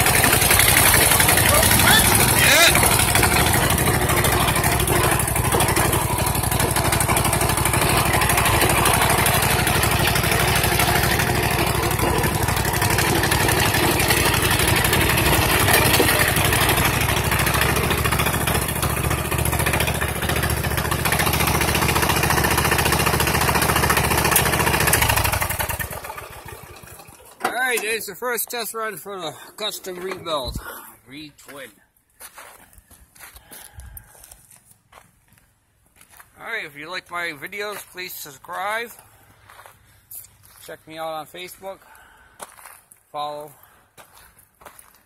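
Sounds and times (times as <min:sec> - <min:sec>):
riding mower engine running: 0:00.0 - 0:28.5.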